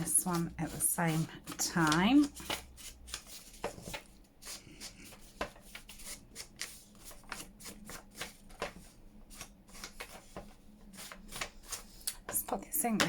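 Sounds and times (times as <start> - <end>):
ink applicator scratching paper: 0.0 - 3.6.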